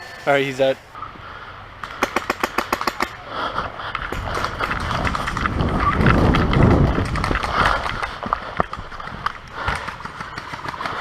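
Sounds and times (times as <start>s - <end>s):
rumbling handling noise: 3.9s - 11.0s.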